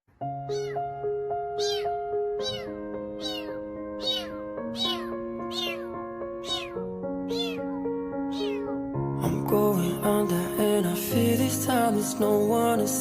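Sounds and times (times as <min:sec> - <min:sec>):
slow music with held chords: 0:00.2 - 0:13.0
cat meowing: 0:00.4 - 0:00.9, 0:01.6 - 0:08.8.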